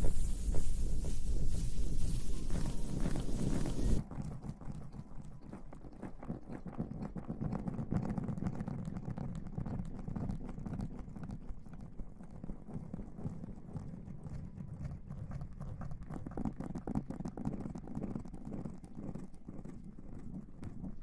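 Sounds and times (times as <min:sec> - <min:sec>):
close rubbing and scratching: 0:00.0 - 0:04.0.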